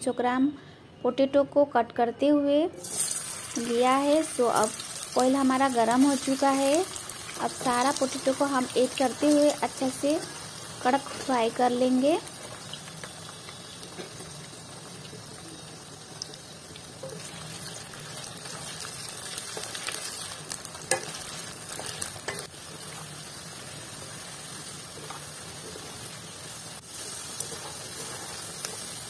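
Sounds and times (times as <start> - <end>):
potatoes sizzling in oil: 2.8 - 29.0
metal spoon clicking on pan: 20.9 - 21.1.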